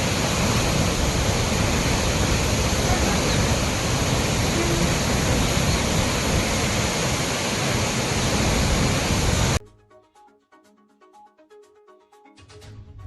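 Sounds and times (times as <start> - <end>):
water roaring through spillway: 0.0 - 9.6.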